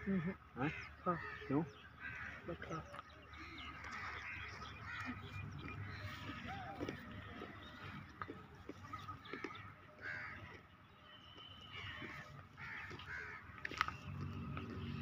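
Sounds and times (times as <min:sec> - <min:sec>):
birds cawing: 0:00.0 - 0:15.0.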